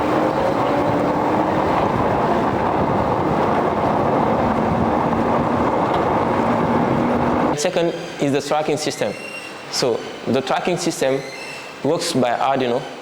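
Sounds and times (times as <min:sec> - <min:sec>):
vehicle rushing noise: 0:00.0 - 0:08.2.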